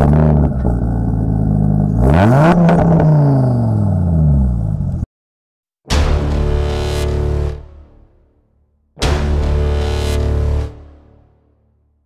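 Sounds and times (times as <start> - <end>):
car engine revving: 0.0 - 5.1.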